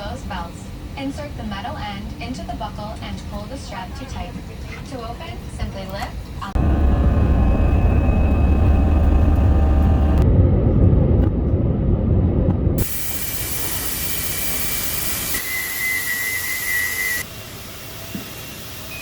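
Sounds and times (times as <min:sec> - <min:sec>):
jet airliner rumble: 0:00.0 - 0:15.5
high steady whine: 0:05.4 - 0:17.3
jet hiss: 0:12.8 - 0:19.0.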